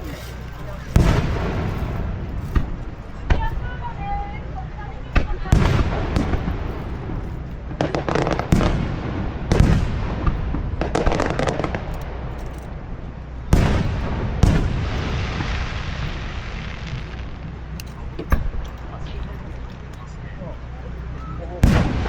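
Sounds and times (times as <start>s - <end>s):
fireworks crackling pops: 0.0s - 3.8s, 5.2s - 12.2s, 13.5s - 20.0s
fireworks booming: 0.0s - 4.0s, 5.0s - 19.0s, 21.6s - 22.0s.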